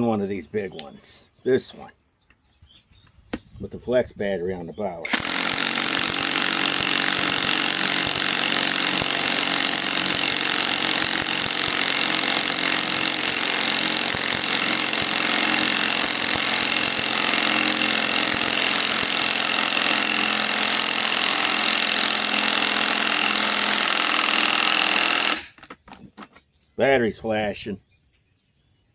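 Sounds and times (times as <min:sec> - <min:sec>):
impact wrench hammering: 0:05.1 - 0:25.6.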